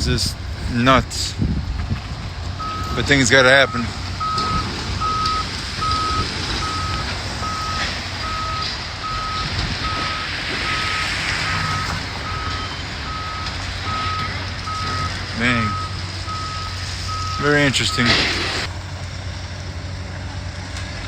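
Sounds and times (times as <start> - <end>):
diesel engine running: 0.0 - 21.0
backup alarm beeping: 2.6 - 18.2.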